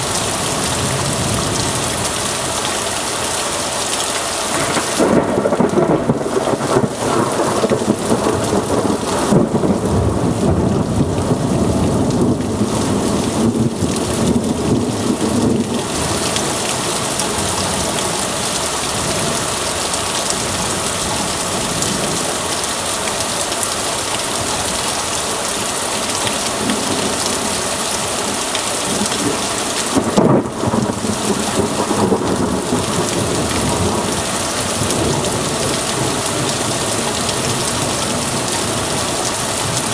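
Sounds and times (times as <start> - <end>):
heavy rain hissing: 0.0 - 39.9
loud thunderclap: 4.5 - 15.9, 28.9 - 36.6
thunder rumbling: 4.5 - 19.5, 26.6 - 39.9.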